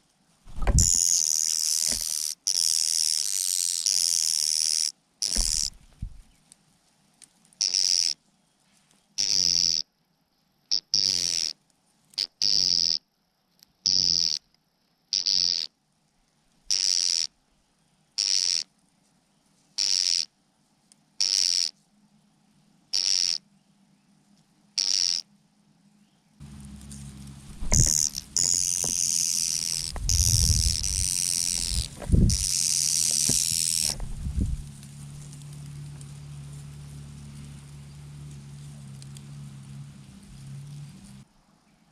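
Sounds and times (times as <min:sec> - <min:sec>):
low scuffling thumps: 0:00.5 - 0:01.0, 0:05.4 - 0:06.3, 0:26.4 - 0:35.5
mynah birds screeching: 0:27.3 - 0:35.4.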